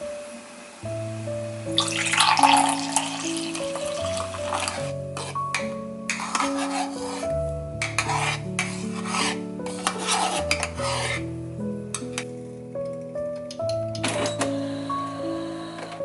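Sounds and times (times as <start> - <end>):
gentle background music: 0.0 - 16.0
rubbing or scraping strokes: 3.4 - 11.4.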